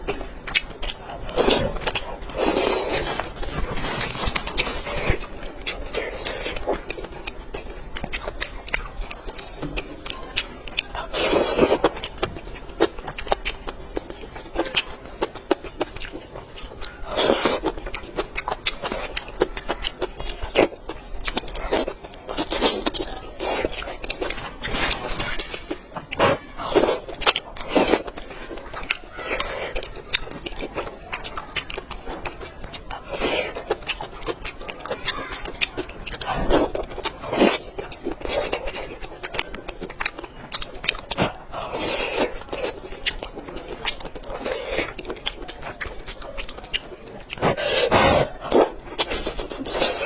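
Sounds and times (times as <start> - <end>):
chewing and biting: 0.0 - 50.0.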